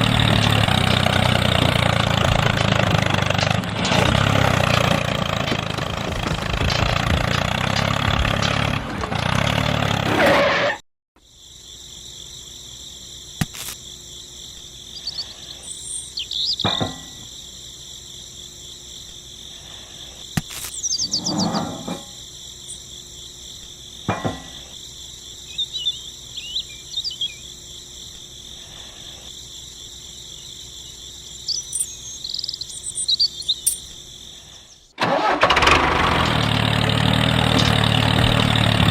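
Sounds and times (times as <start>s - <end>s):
small engine running: 0.0s - 10.2s, 35.0s - 38.9s
insects chirring: 11.2s - 38.9s
bird chirps: 14.9s - 17.3s, 20.4s - 22.9s, 25.3s - 28.2s, 30.2s - 35.0s.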